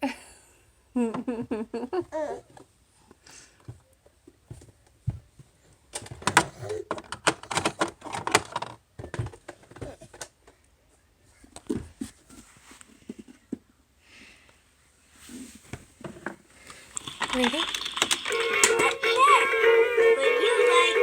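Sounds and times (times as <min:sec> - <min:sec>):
toy pieces clicking and clattering: 0:16.8 - 0:19.0.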